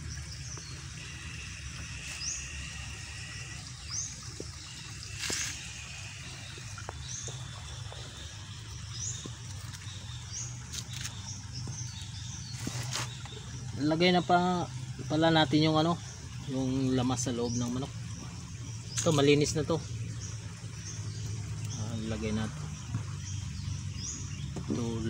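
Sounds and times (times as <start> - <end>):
low hum: 0.0 - 25.0
high buzzing call: 0.8 - 6.8.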